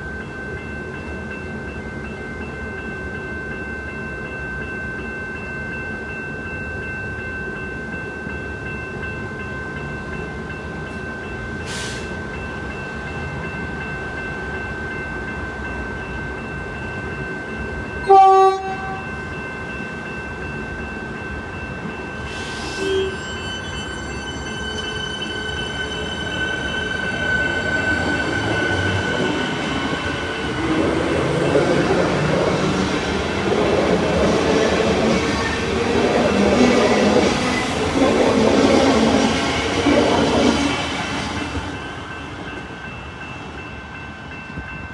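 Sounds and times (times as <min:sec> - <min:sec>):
electric train running past: 0:00.0 - 0:44.9
steady high tone: 0:20.4 - 0:43.3
electric train running: 0:21.9 - 0:42.2
wheels rumbling on rails: 0:24.2 - 0:41.7.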